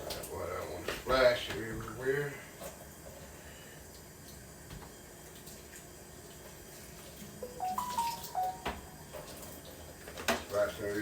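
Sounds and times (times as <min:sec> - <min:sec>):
water running from a tap: 0:05.3 - 0:11.0
short tune of held notes: 0:07.4 - 0:09.3.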